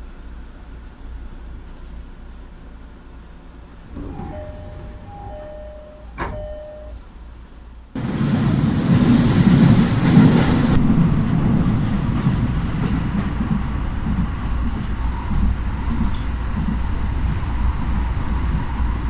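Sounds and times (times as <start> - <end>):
train rumbling: 0.0 - 19.0
steady held tones: 4.0 - 7.0.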